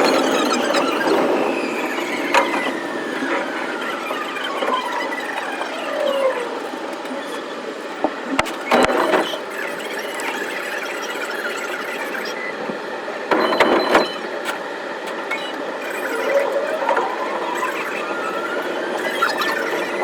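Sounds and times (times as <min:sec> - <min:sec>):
sped-up train squealing: 0:00.0 - 0:20.0.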